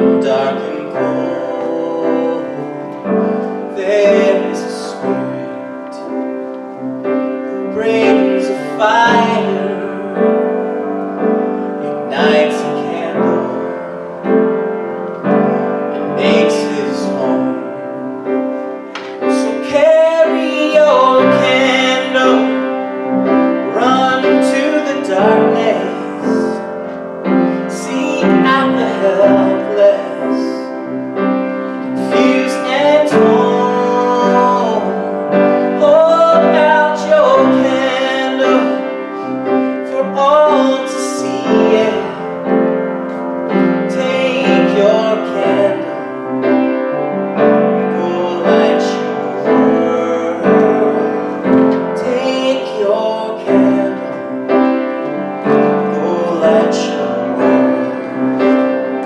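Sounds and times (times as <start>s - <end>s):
piano accompaniment: 0.0s - 59.0s
person singing a slow prayer: 31.9s - 42.2s.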